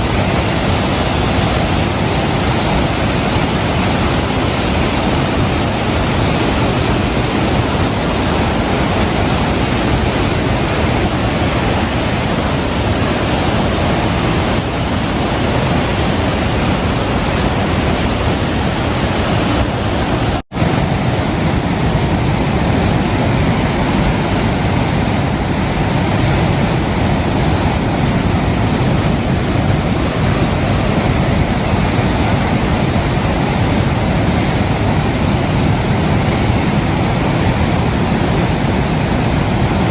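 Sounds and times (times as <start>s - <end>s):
rain: 0.0s - 39.9s
wind on microphone: 0.0s - 39.9s.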